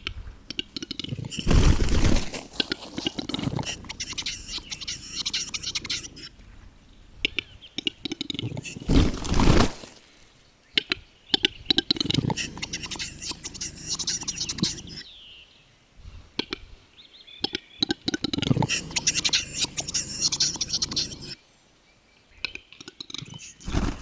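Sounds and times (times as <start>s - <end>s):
scratchy wheezing bird sounds: 0.8s - 6.4s, 7.3s - 10.4s, 11.4s - 15.3s, 17.9s - 21.4s, 23.0s - 24.0s.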